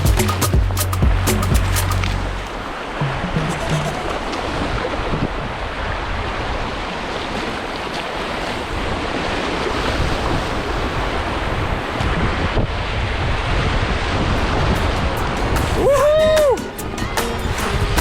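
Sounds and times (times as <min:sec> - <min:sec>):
river water rushing: 0:00.0 - 0:18.0
wind buffeting microphone: 0:03.9 - 0:07.6, 0:08.2 - 0:18.0.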